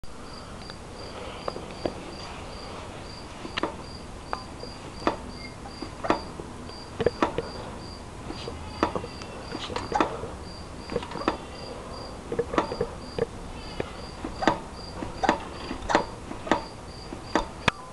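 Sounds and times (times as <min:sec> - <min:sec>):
cricket chirping: 0:00.1 - 0:17.9
bike shock clacking: 0:03.4 - 0:06.4, 0:07.0 - 0:07.6, 0:08.3 - 0:10.3, 0:10.9 - 0:11.6, 0:12.3 - 0:17.8.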